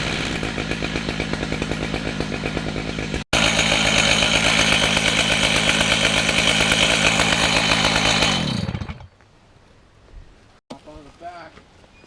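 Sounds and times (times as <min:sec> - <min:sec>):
chainsaw cutting log: 0:00.0 - 0:09.2.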